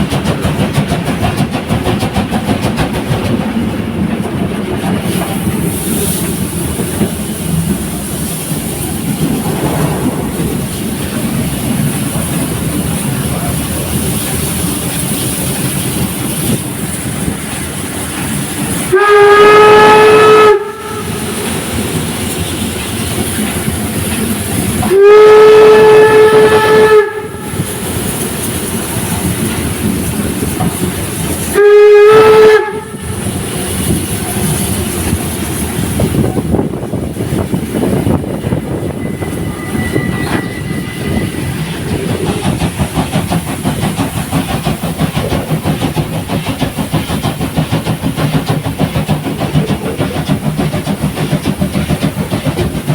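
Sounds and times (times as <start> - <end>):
rhythmic beat of moving train: 0.0 - 52.9
steam train running: 0.0 - 52.9
steam locomotive whistle: 18.9 - 21.8, 24.7 - 28.0, 31.5 - 34.8, 38.8 - 41.8.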